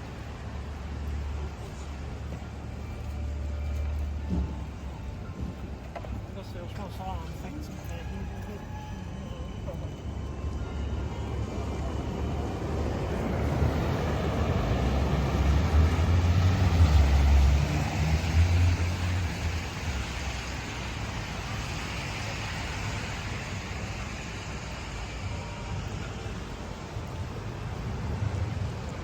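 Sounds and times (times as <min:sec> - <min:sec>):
wet city street hiss: 0:00.0 - 0:29.0.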